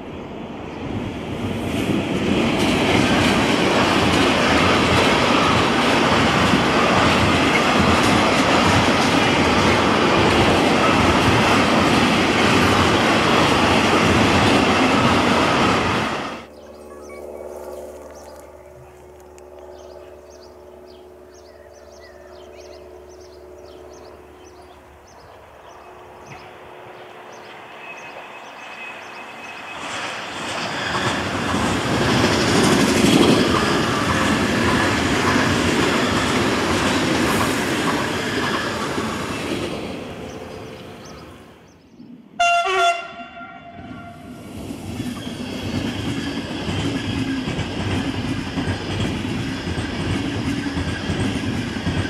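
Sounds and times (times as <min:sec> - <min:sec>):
train passing rush: 0:00.0 - 0:52.0
train wheels clattering: 0:02.2 - 0:15.9, 0:27.4 - 0:39.9, 0:44.9 - 0:52.0
train horn blast: 0:42.4 - 0:44.4.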